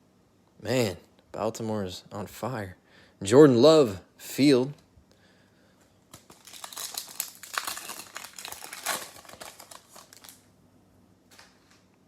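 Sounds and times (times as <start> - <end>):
foil wrapper crinkling and tearing: 6.1 - 10.5
wrapper rustle: 6.1 - 10.5.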